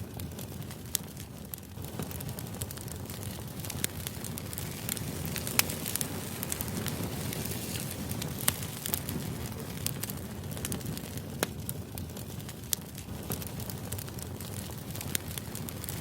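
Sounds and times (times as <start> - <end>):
sharp crackles and pops: 0.0 - 16.0.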